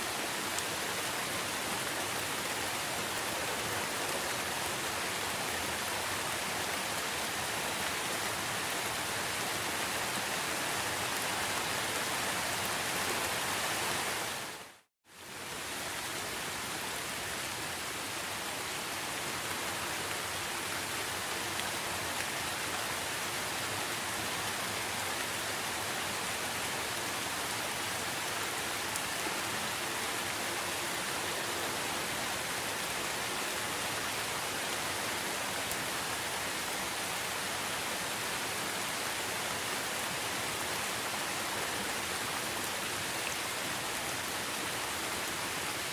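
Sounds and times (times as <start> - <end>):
steady rain: 0.0 - 45.9.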